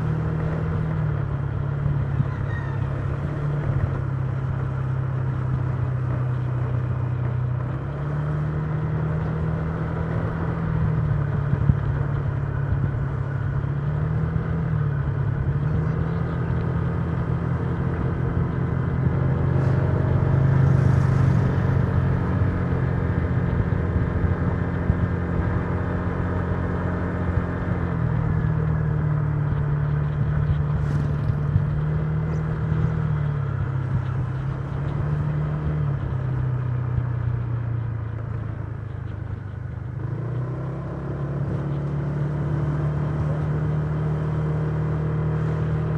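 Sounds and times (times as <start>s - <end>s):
wind and road noise: 0.0s - 45.9s.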